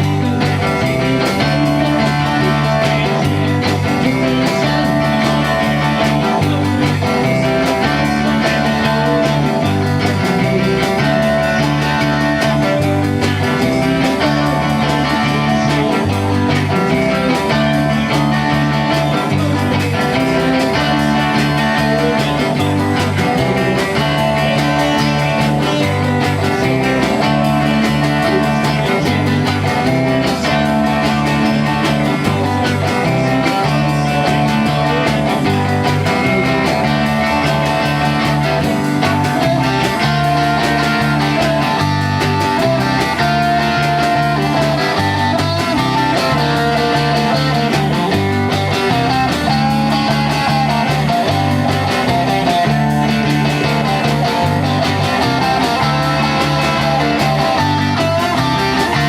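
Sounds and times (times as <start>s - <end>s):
electric guitar: 0.0s - 59.0s
rock band playing: 0.0s - 59.0s.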